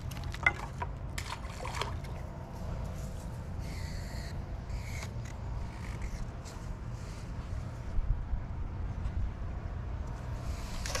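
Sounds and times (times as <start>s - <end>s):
wind rumble on microphone: 5.4s - 11.0s.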